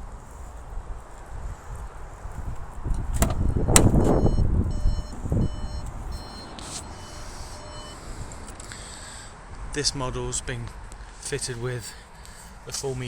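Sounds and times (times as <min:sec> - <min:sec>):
van door latch click: 0:03.1 - 0:04.2
electronic warning chime beeps: 0:04.2 - 0:08.2.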